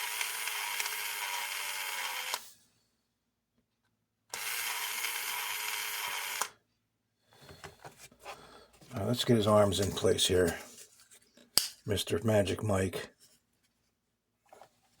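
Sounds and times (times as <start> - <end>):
small electric motor running: 0.0 - 2.4, 4.4 - 6.5.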